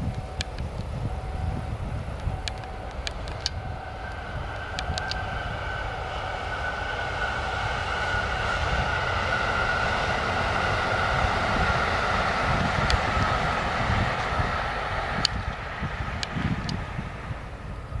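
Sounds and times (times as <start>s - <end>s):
train rumble with high whine: 0.0s - 18.0s.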